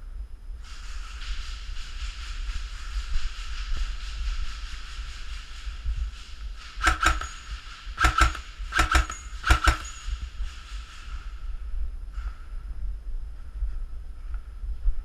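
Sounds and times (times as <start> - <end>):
wind rumble on microphone: 0.0 - 15.0
airsoft gun shots: 6.7 - 10.0.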